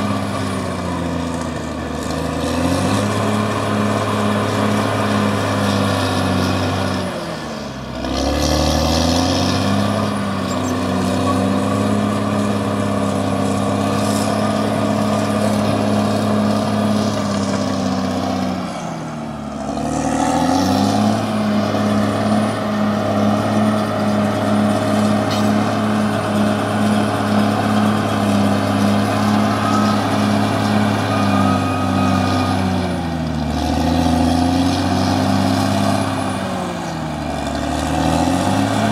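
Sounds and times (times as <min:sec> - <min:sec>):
bulldozer diesel engine droning: 0:00.0 - 0:38.9.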